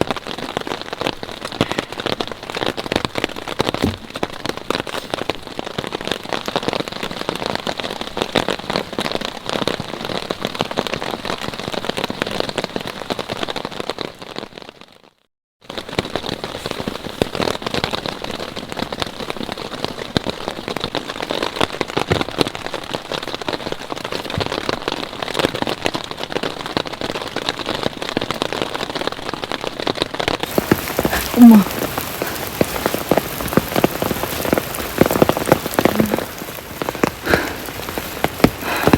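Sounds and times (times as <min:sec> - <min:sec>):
steady rain pattering: 0:00.0 - 0:38.9.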